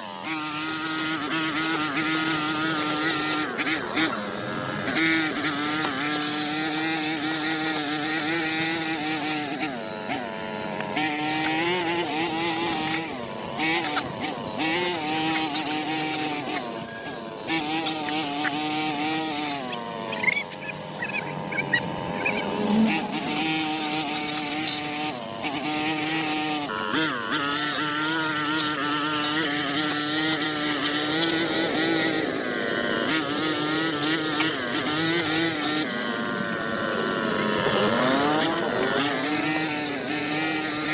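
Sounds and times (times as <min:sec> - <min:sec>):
small petrol engine running: 0:00.0 - 0:40.9.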